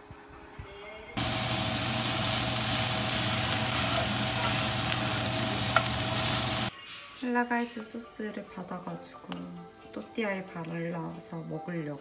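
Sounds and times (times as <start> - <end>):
food sizzling in a frying pan: 1.2 - 6.7.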